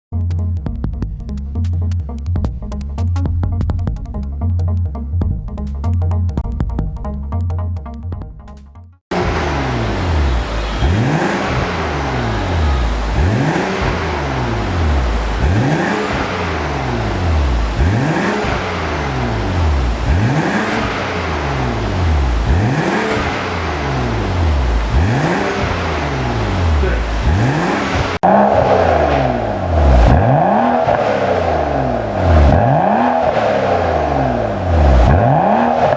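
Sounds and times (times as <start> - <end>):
car engine revving: 9.1 - 35.9.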